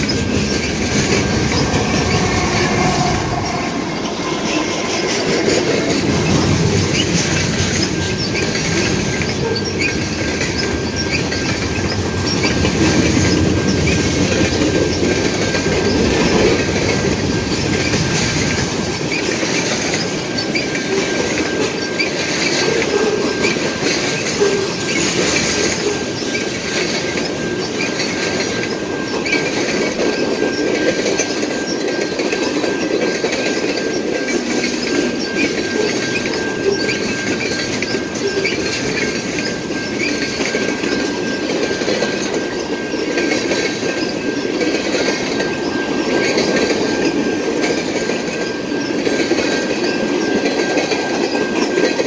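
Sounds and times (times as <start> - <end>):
high-pitched wheel squeal: 0.0 - 12.4
freight train rumbling and clattering: 0.0 - 52.0.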